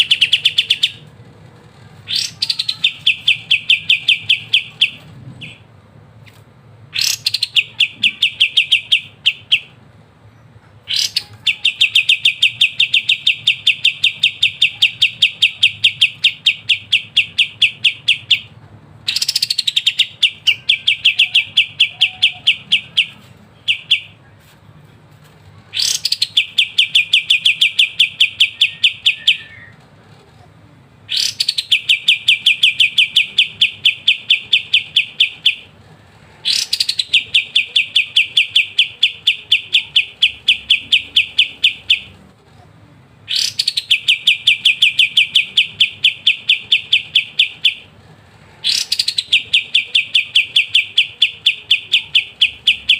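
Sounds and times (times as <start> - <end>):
songbird singing rattling chirps: 2.0 - 5.6, 19.1 - 24.2, 25.7 - 29.7, 43.3 - 47.9, 48.6 - 52.9.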